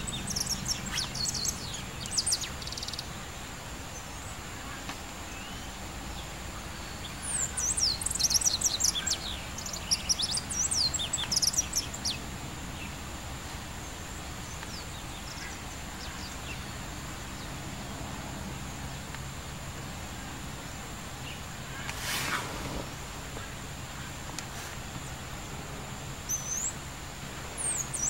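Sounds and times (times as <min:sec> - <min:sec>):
high sweeping bird chirps: 0:00.0 - 0:03.3, 0:06.7 - 0:12.2
outdoor background noise: 0:00.0 - 0:28.0.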